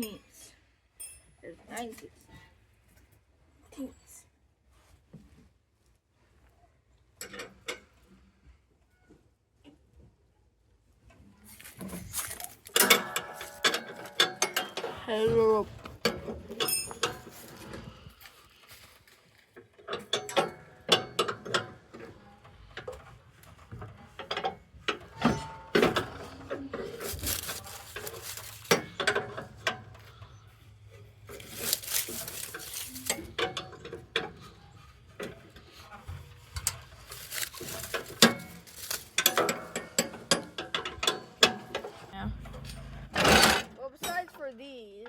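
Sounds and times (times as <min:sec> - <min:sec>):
metal clanks and knocks: 0:11.8 - 0:18.1, 0:19.7 - 0:44.3.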